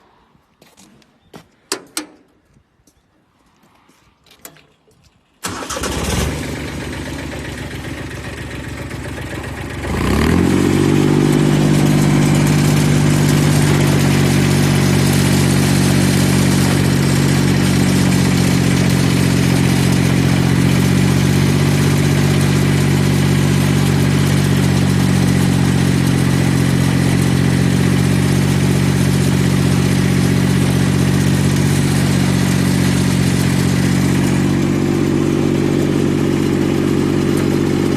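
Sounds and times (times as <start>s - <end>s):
starter motor cranking: 5.4s - 8.2s
diesel engine running: 5.4s - 37.9s.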